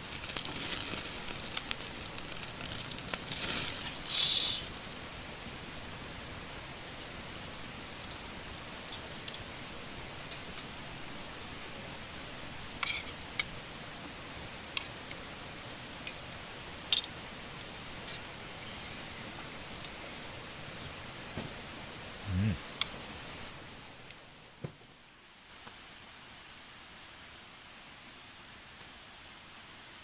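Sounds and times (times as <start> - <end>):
fire popping: 0.0 - 20.9
campfire crackling: 0.0 - 25.9
low steady hiss: 0.0 - 30.0.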